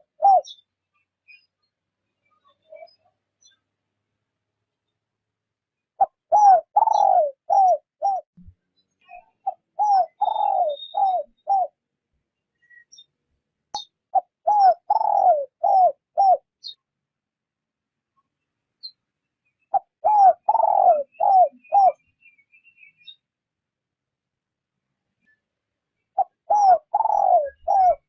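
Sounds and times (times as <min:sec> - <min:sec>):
dove cooing: 0:00.0 - 0:00.6, 0:06.0 - 0:08.3, 0:09.4 - 0:11.8, 0:14.1 - 0:16.5, 0:19.7 - 0:22.0, 0:26.2 - 0:28.0.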